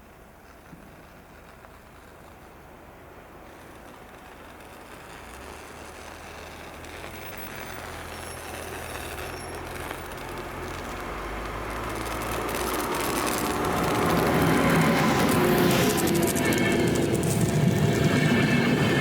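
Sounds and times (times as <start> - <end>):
train approaching rumble: 0.0 - 19.0.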